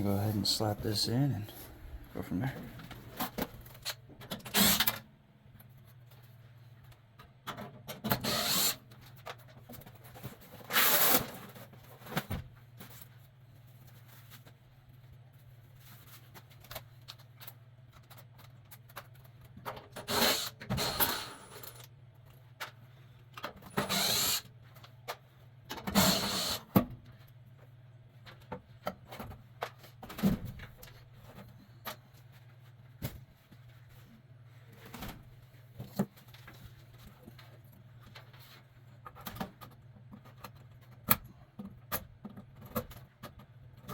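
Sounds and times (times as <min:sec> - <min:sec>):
cordless power driver bursts: 0:23.8 - 0:24.5, 0:26.0 - 0:26.6.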